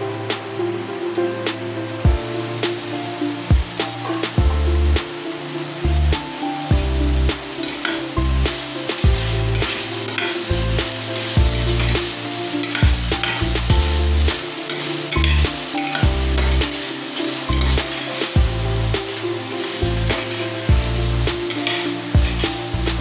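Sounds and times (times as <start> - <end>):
background music: 0.0 - 23.0
chicken and vegetables sizzling: 0.0 - 23.0
metal spatula scraping pan: 8.9 - 18.4, 21.4 - 22.5.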